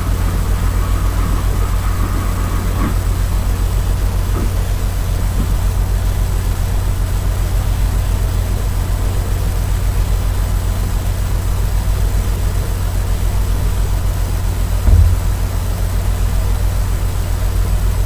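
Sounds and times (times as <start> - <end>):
thump: 14.8 - 15.5
motorcycle engine idling: 14.9 - 15.6.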